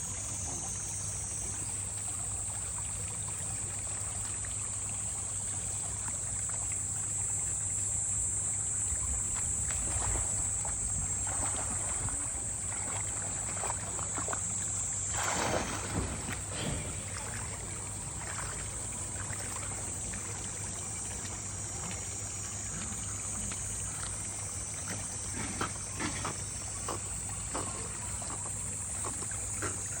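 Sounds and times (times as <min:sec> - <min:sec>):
water sloshing and splashing: 0:08.8 - 0:30.0.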